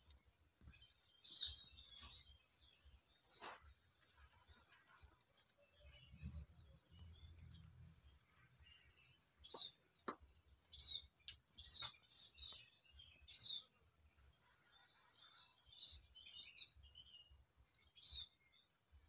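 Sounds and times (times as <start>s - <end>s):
small birds chirping: 0.0s - 19.0s
soft bird twittering: 10.7s - 18.8s.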